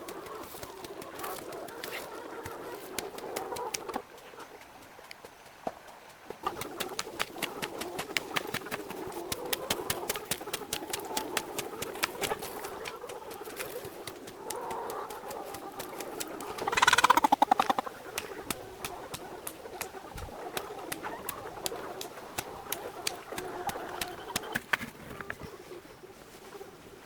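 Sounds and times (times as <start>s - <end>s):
quick clicks: 16.5s - 17.9s
loud buzzy animal call: 16.6s - 17.8s.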